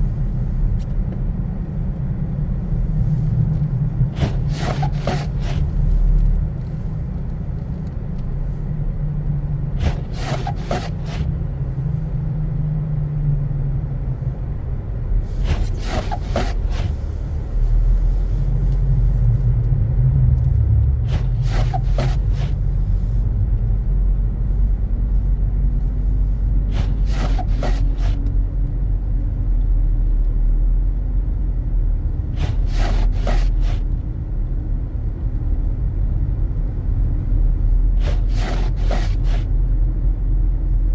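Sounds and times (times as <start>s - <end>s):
car engine and tyres rumbling: 0.0s - 40.9s
windshield wipers scraping: 3.1s - 6.8s, 9.6s - 11.4s, 15.2s - 18.5s, 21.1s - 23.2s, 26.0s - 28.3s, 32.2s - 34.0s, 37.9s - 39.5s.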